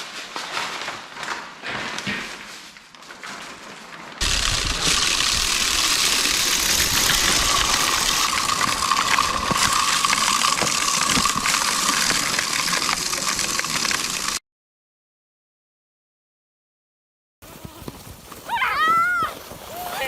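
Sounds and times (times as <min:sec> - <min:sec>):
snowblower engine running: 0:04.2 - 0:14.4.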